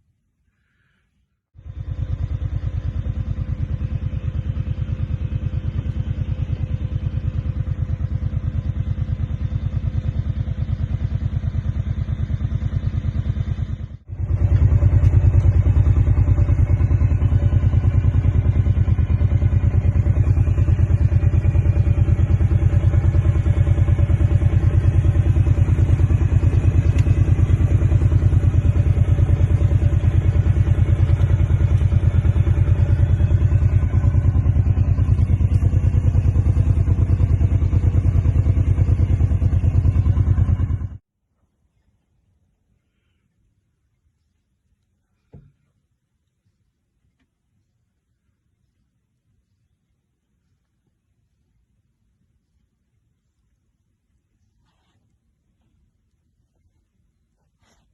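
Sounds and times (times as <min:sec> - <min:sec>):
utility vehicle engine running: 0:01.6 - 0:41.1.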